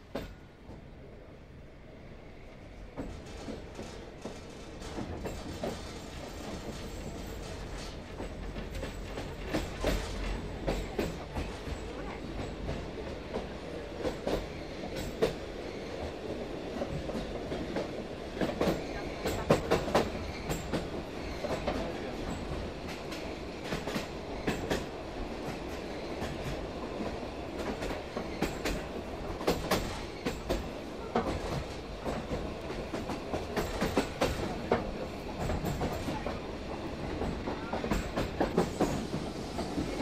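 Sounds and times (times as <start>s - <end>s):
train running rumble: 2.8s - 40.0s.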